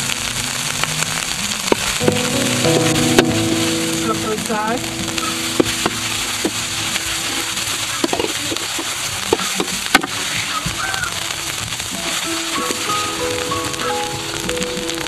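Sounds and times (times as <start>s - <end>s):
soft background music: 2.0s - 8.8s, 12.2s - 15.0s.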